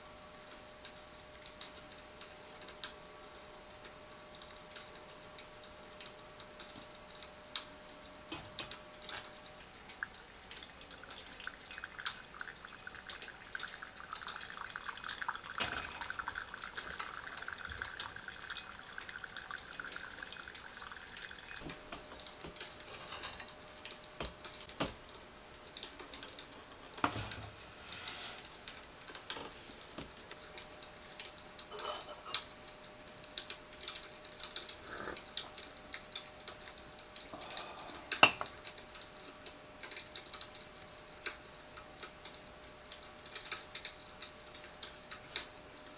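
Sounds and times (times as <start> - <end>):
liquid pouring: 10.0 - 24.0
tableware clinking: 22.8 - 23.6, 31.7 - 32.5, 38.1 - 38.6.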